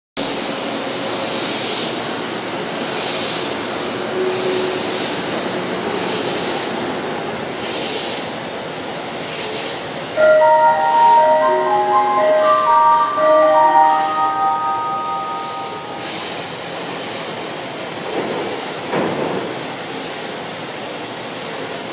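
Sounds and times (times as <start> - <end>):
electric train humming: 3.2 - 7.5, 10.0 - 17.4
chime-like departure melody: 10.2 - 16.7.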